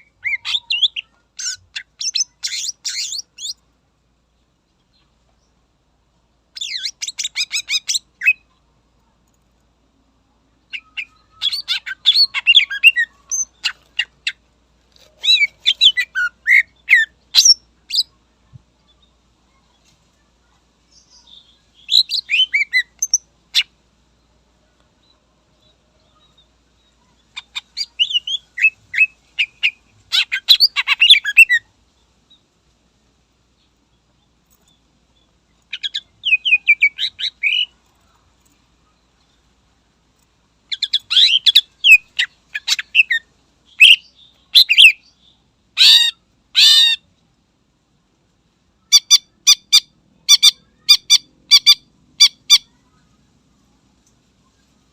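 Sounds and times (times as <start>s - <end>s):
bird chirping and trilling: 0.0s - 3.6s, 6.5s - 8.6s, 10.6s - 18.2s, 20.9s - 23.8s, 27.0s - 31.7s, 35.7s - 37.8s, 40.7s - 47.0s, 48.8s - 53.0s.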